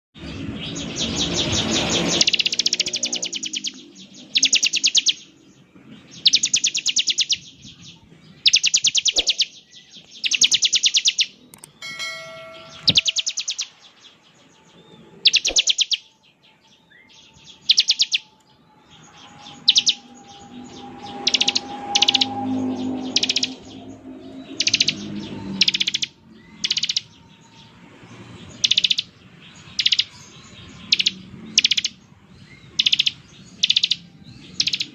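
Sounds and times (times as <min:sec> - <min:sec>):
bird buzzing trills: 0:01.0 - 0:05.3, 0:17.2 - 0:27.3
bell-like ring: 0:11.7 - 0:13.9.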